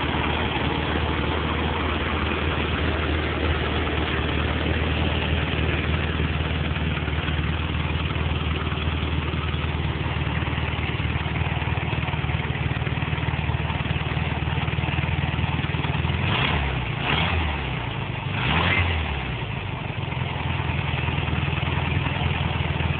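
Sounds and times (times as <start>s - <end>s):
car engine idling: 0.0s - 22.9s
engine revs blipped: 16.2s - 19.2s.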